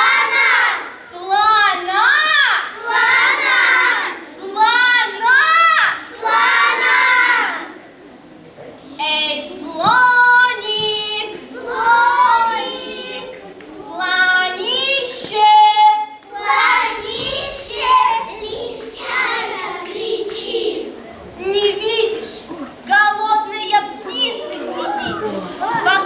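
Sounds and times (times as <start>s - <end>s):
children singing: 0.0s - 7.7s, 9.1s - 21.0s.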